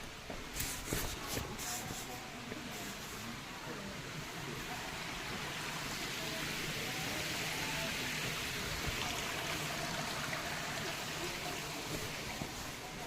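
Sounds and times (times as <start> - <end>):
water rushing: 3.3 - 13.0.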